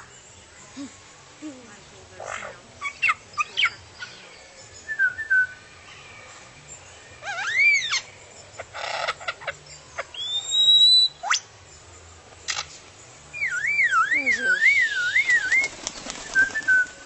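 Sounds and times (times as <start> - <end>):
bird whistling calls: 2.2 - 5.7, 7.2 - 11.5, 13.3 - 17.0.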